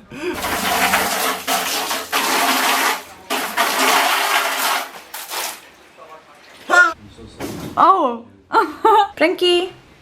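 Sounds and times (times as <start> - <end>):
water rushing out of hot tub: 0.4 - 6.7.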